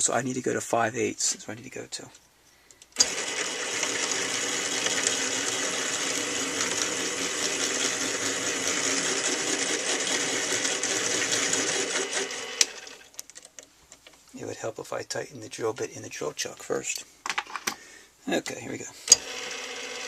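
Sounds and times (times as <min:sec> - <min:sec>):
rotary tool motor running: 0:03.0 - 0:13.1, 0:19.1 - 0:20.0.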